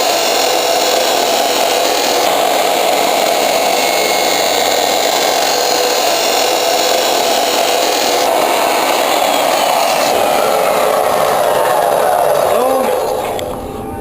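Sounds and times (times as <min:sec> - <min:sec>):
metalworking tool on steel: 0:00.0 - 0:13.4.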